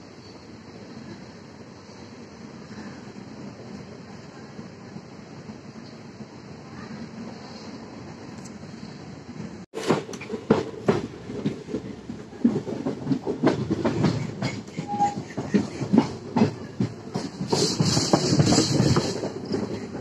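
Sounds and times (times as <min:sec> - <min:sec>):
train wheels clattering over rails: 0:08.2 - 0:20.0
rushing hiss: 0:14.0 - 0:20.0.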